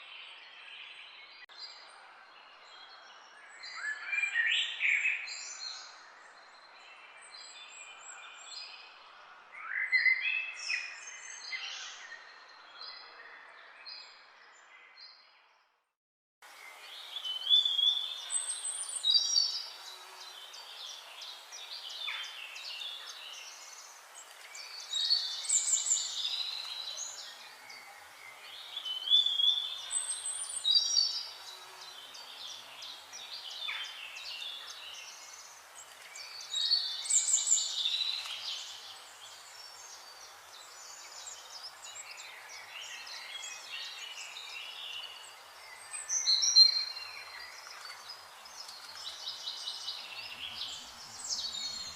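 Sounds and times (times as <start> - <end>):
soft bird chirping: 16.5 - 51.9.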